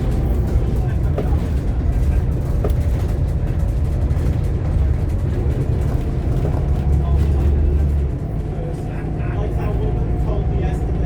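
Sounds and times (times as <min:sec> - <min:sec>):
bus diesel engine droning: 0:00.0 - 0:11.0.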